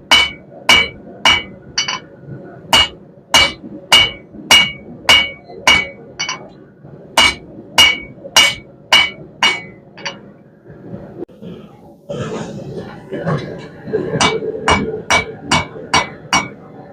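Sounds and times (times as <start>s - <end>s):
hammer striking steel on anvil: 0.1s - 2.1s, 2.7s - 6.5s, 7.2s - 10.2s, 14.2s - 16.6s.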